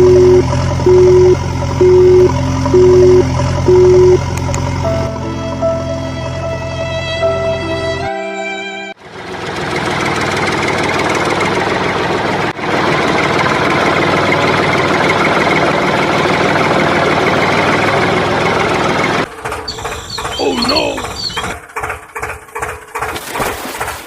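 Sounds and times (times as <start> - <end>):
motor buzzing steadily: 0.0 - 5.9.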